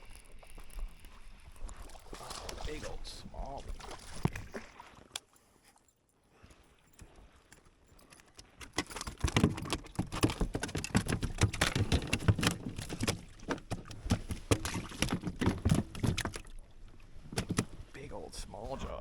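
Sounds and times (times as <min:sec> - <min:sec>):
knocks and rattles on kayak: 0:01.7 - 0:04.7, 0:07.0 - 0:18.0.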